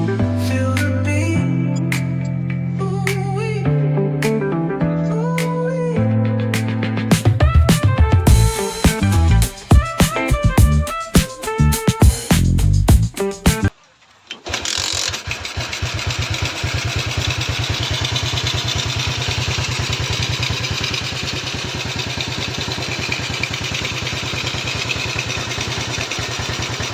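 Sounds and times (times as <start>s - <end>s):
music: 0.0s - 13.7s
engine idling: 14.0s - 26.9s.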